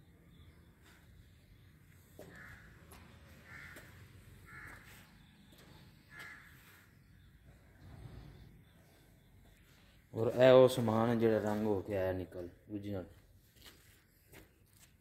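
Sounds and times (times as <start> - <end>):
faint bird calls: 0.0 - 10.1.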